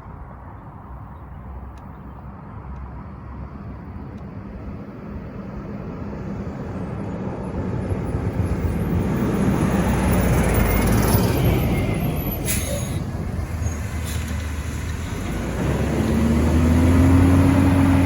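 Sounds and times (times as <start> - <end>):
garbage truck engine approaching: 7.4 - 18.0.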